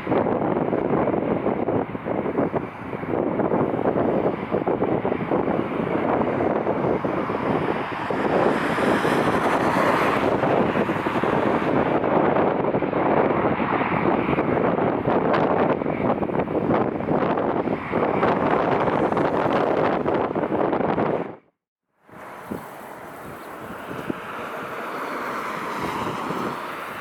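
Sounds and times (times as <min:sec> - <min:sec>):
wind buffeting microphone: 0:00.0 - 0:21.5, 0:22.1 - 0:27.0
bright hiss: 0:22.2 - 0:24.2.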